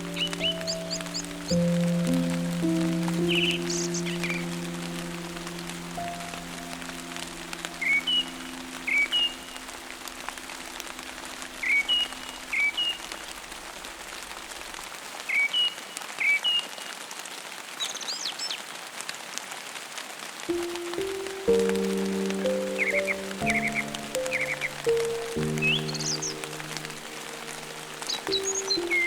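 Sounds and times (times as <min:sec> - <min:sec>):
songbird chirping: 0:00.0 - 0:14.3, 0:20.5 - 0:29.0
steady rain: 0:00.0 - 0:29.0.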